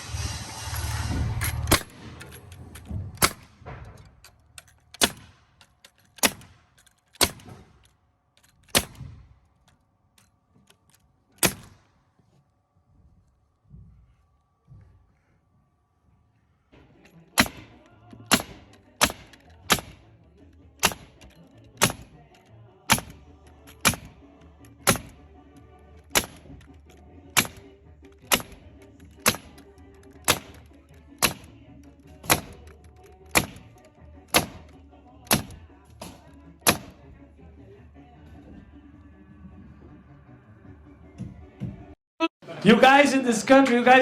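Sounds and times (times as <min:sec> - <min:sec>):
background music: 0:00.0 - 0:11.9, 0:16.7 - 0:44.0
sharp shot-like bangs: 0:00.9 - 0:04.0, 0:05.0 - 0:05.5, 0:06.2 - 0:07.9, 0:08.7 - 0:09.3, 0:11.4 - 0:11.9, 0:17.3 - 0:20.1, 0:20.8 - 0:22.2, 0:22.9 - 0:23.2, 0:23.8 - 0:24.2, 0:24.8 - 0:25.2, 0:26.1 - 0:26.6, 0:27.4 - 0:29.6, 0:30.2 - 0:31.5, 0:32.2 - 0:32.7, 0:33.3 - 0:34.7, 0:35.3 - 0:37.0.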